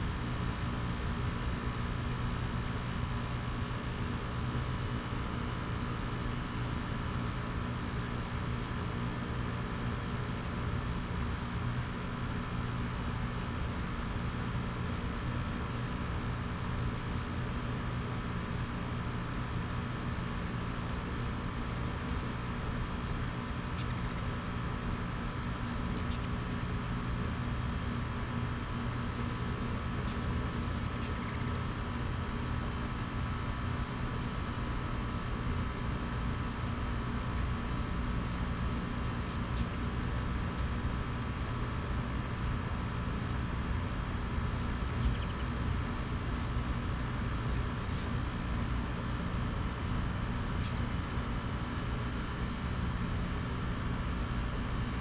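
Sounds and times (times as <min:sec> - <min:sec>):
low mechanical hum: 0:00.0 - 0:55.0
hummingbird chip calls: 0:19.2 - 0:21.1, 0:22.2 - 0:32.4, 0:38.4 - 0:39.7, 0:42.2 - 0:44.0, 0:44.6 - 0:45.6, 0:46.4 - 0:48.2, 0:50.3 - 0:52.3, 0:54.0 - 0:54.9.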